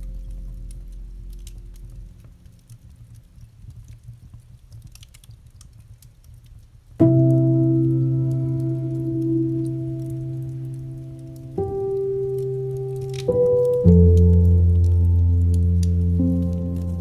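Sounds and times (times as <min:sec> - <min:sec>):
slow piano music: 0:00.0 - 0:02.8, 0:07.0 - 0:17.0
campfire crackling: 0:00.0 - 0:17.0.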